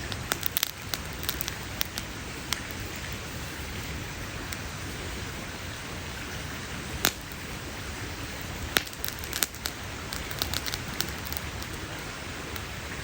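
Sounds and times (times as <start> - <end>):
sharp fire pops: 0.0 - 4.7, 7.0 - 7.6, 8.2 - 12.8
campfire crackling: 0.0 - 13.0
steady hiss: 0.0 - 13.0.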